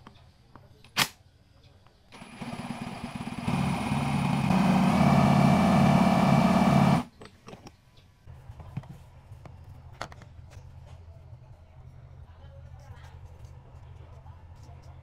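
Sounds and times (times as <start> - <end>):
small engine revving: 2.2 - 7.1.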